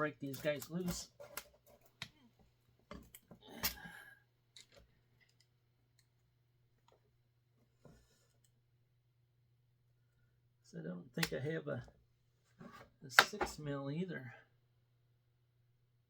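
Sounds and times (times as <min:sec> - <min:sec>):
hand tools clicking and clinking: 0:00.3 - 0:02.0.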